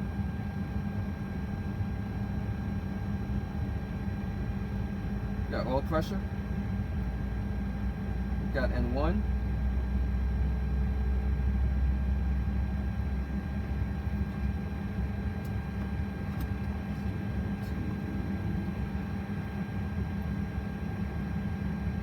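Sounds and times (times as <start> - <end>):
jet engines rumbling: 10.8 - 22.0.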